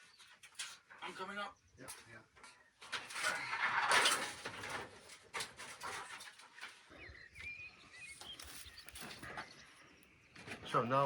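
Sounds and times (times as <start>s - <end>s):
rustling scraping noise: 2.8s - 7.0s
bird chirp: 6.7s - 11.0s.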